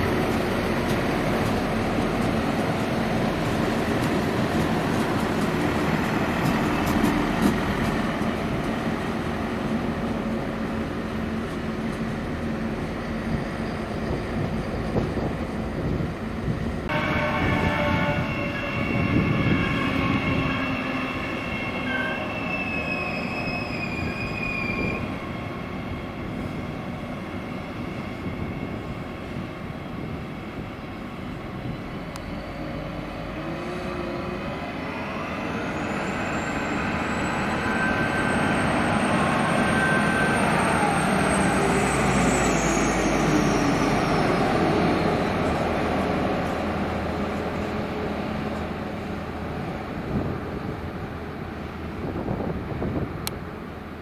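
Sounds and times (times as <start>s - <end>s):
train rumble: 0.0s - 54.0s
wind buffeting microphone: 13.2s - 20.9s, 23.9s - 32.1s, 49.5s - 53.5s.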